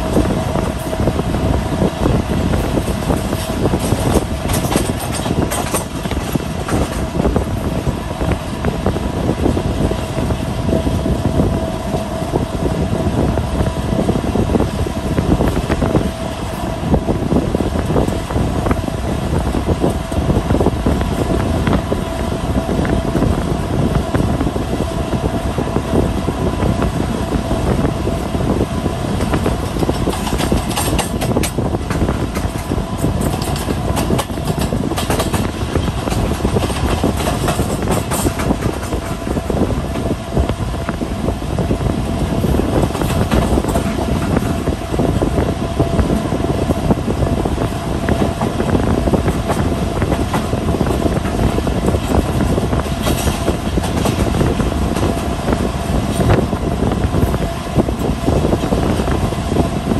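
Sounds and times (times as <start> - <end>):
train wheels rumbling on track: 0.0 - 59.9
clicks over rail joints: 29.2 - 39.1.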